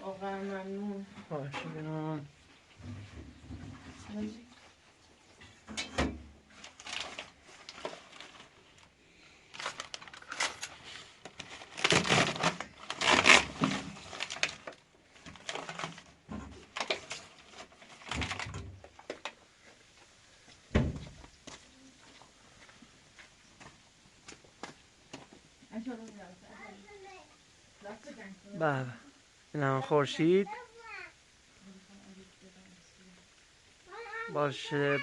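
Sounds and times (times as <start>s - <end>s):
objects rustling and clattering: 0.2s - 25.6s.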